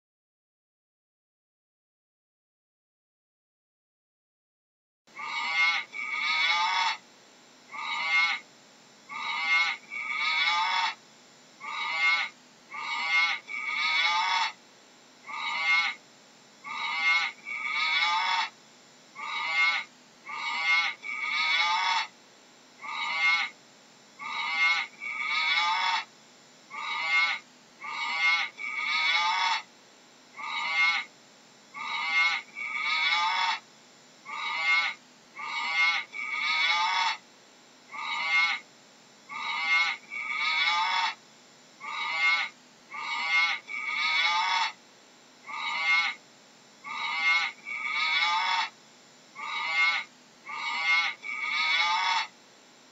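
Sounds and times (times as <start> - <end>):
short high-pitched animal calls: 5.2 - 7.0, 7.7 - 8.5, 9.1 - 11.0, 11.6 - 14.6, 15.2 - 16.0, 16.6 - 18.6, 19.2 - 22.2, 22.8 - 23.6, 24.2 - 26.1, 26.7 - 29.7, 30.4 - 31.1, 31.8 - 33.6, 34.2 - 37.2, 37.9 - 38.7, 39.3 - 41.2, 41.8 - 44.8, 45.4 - 46.2, 46.8 - 48.8, 49.4 - 52.4.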